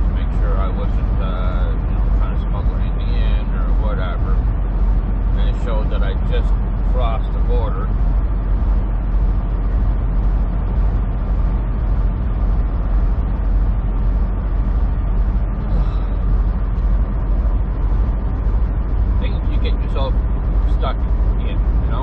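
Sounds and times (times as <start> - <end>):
truck diesel engine and road drone: 0.0 - 22.0.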